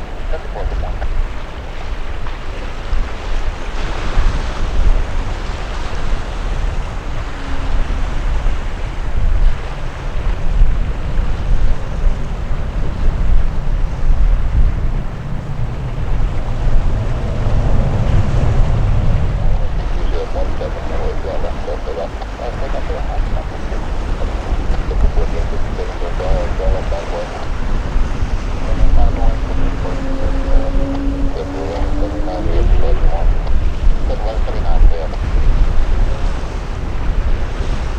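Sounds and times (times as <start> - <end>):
wind buffeting microphone: 0.0 - 37.9.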